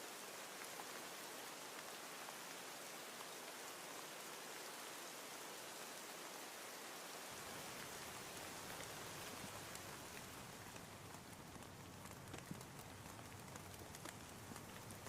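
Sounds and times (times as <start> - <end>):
steady rain hissing: 0.0 - 15.0
faint ticks: 7.5 - 15.0.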